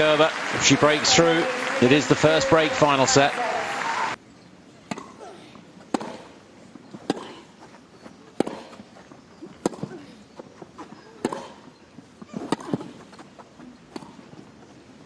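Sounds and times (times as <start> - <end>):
racket hitting tennis ball: 4.9 - 5.2, 5.9 - 6.4, 7.0 - 7.5, 8.4 - 8.9, 9.6 - 10.0, 11.2 - 11.6, 12.3 - 13.3.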